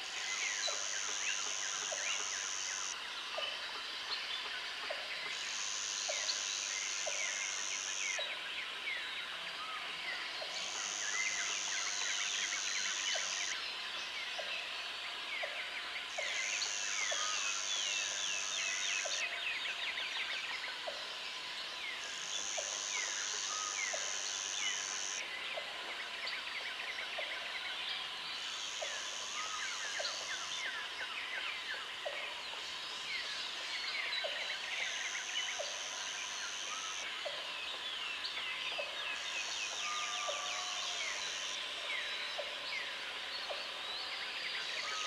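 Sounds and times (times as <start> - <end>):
insect buzzing: 0.3 - 3.0, 5.3 - 8.2, 22.0 - 25.2.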